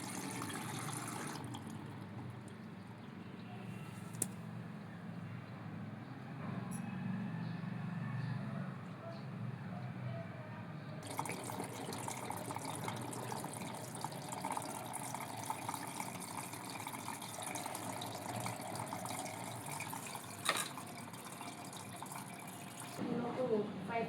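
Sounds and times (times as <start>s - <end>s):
water rushing into washing machine: 0.0s - 2.7s, 11.0s - 23.0s.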